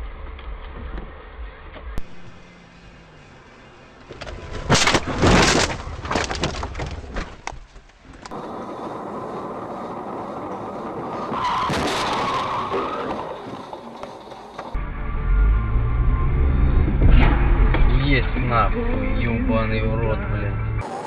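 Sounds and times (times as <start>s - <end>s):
car road noise: 0.0s - 21.0s
tyres skidding: 1.2s - 14.8s
car crash impacts: 4.2s - 7.5s, 11.4s - 13.5s.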